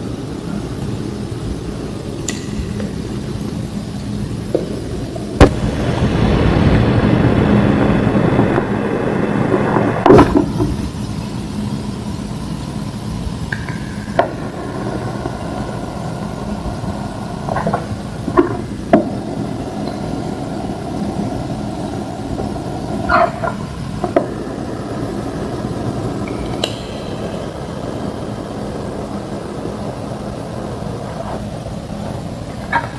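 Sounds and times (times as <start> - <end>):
low hum: 0.0 - 32.9.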